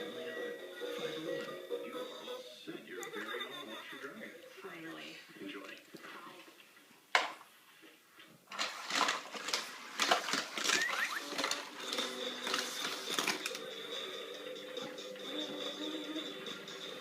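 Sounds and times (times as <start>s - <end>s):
toy cars clattering on track: 8.5s - 13.6s.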